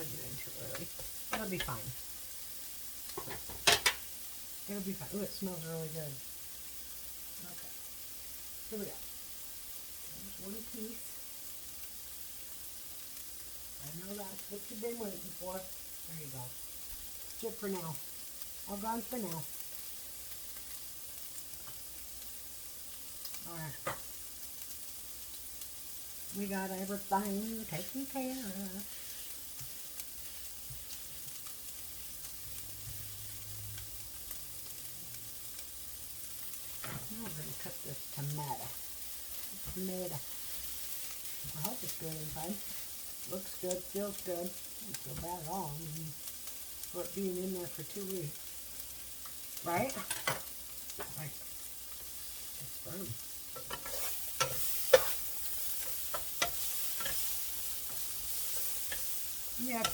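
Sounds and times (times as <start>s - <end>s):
vegetables sizzling in a pan: 0.0s - 59.9s.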